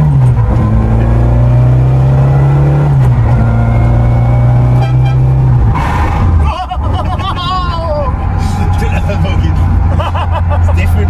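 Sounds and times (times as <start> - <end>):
car engine pulling under load: 0.0 - 11.0.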